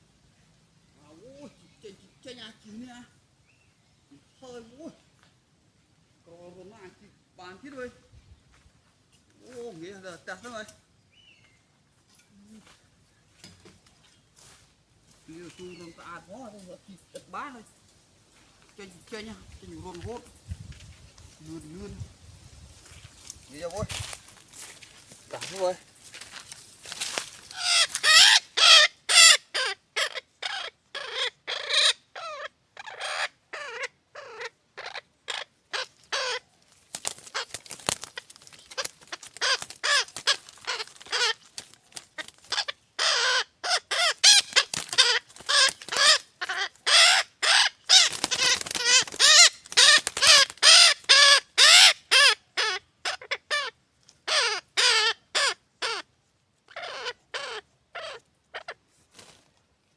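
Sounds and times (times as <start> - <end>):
parrot chicks squawking: 27.5 - 56.1, 56.7 - 58.8.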